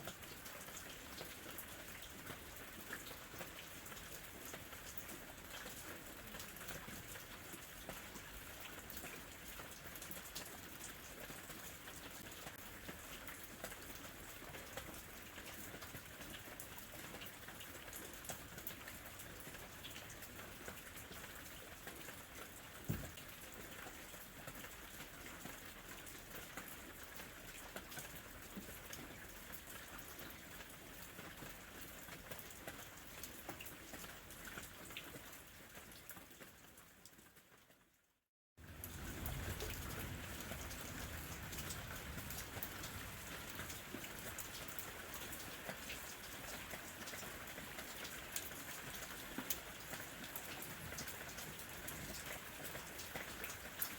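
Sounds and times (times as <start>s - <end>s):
gentle rain pattering: 0.0s - 53.9s
sharp knock: 22.9s - 23.1s.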